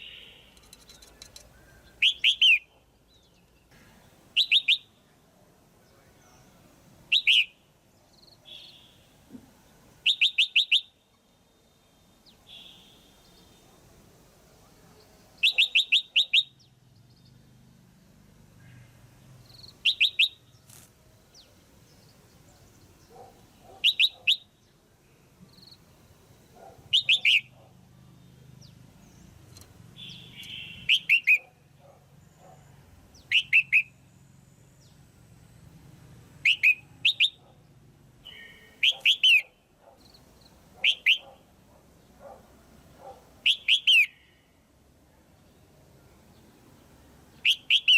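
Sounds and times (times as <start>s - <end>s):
bird chirping in bursts: 0.0s - 5.1s, 5.9s - 9.2s, 9.9s - 13.7s, 15.0s - 17.5s, 19.1s - 24.8s, 25.5s - 31.5s, 32.1s - 41.4s, 43.4s - 44.6s, 46.3s - 47.9s.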